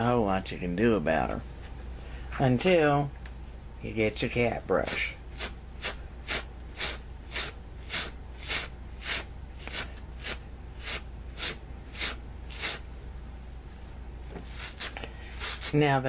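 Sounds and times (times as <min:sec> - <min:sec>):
wire brush stroking fabric: 0:04.7 - 0:12.9, 0:14.3 - 0:16.0.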